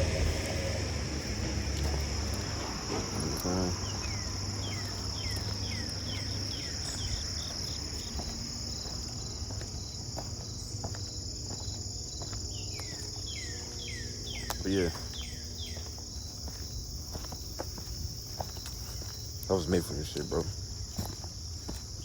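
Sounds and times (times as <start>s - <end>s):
low rumble: 0.0s - 8.6s
night insects chorus: 0.0s - 22.0s.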